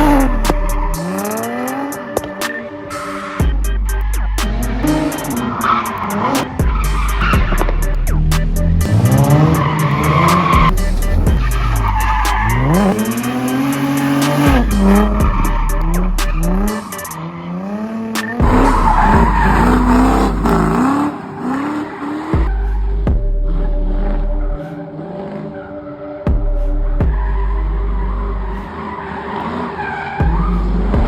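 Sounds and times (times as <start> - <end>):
tyres squealing: 0.0 - 7.9, 8.6 - 22.5
car engine revving hard: 0.0 - 22.9.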